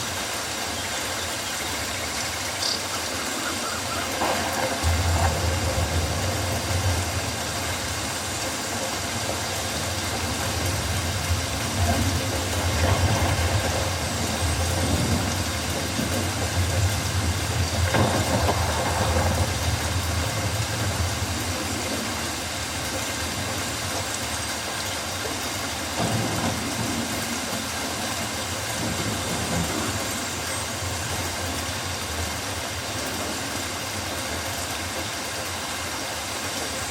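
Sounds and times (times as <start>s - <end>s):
rain on foliage: 0.0s - 36.9s
low rumble: 4.8s - 8.3s.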